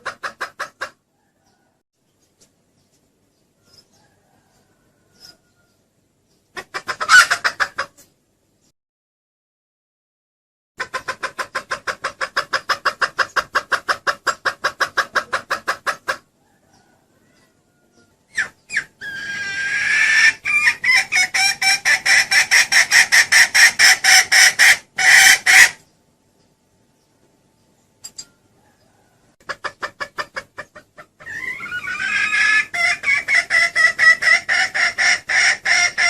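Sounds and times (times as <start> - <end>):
drawn-out hen call: 0.0 - 1.8, 6.6 - 8.0, 10.8 - 25.8, 28.4 - 36.0
hen clucking: 0.0 - 2.5, 3.6 - 8.1, 10.8 - 25.9, 28.1 - 36.0.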